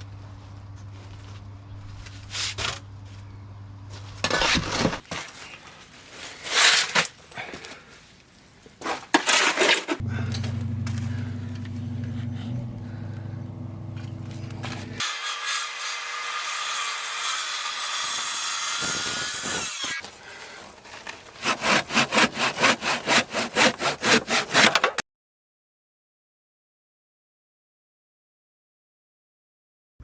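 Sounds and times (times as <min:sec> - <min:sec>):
hand saw cutting timber: 0:06.4 - 0:07.1, 0:08.9 - 0:13.1, 0:14.2 - 0:25.0
steady low hum: 0:10.0 - 0:15.0.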